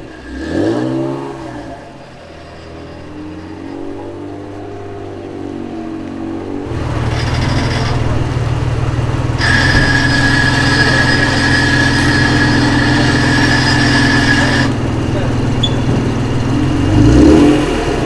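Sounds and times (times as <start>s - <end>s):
car engine idling: 1.7s - 18.0s
high-pitched whine: 6.8s - 14.9s.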